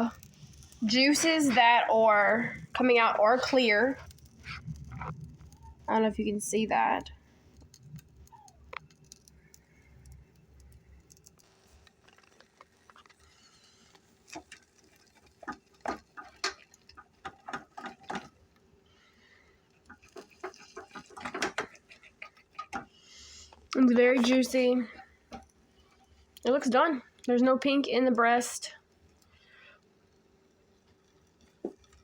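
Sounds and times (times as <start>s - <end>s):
utensils clicking against a pan: 0.0s - 4.3s, 10.0s - 18.4s, 19.8s - 23.0s.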